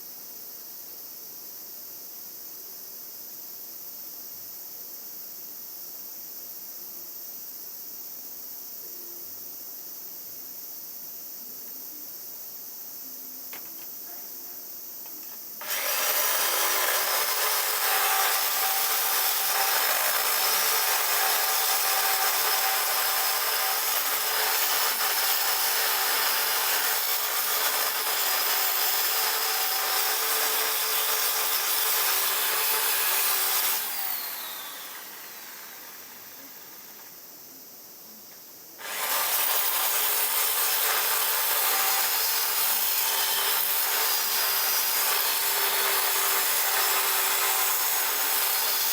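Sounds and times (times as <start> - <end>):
electric power tool running: 15.6 - 37.0, 38.8 - 48.9.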